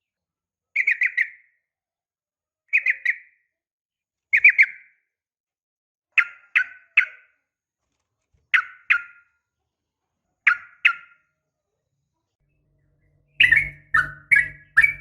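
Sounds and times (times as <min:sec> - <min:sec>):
bulbul calling: 0:00.8 - 0:01.4, 0:10.5 - 0:11.2, 0:12.4 - 0:15.0.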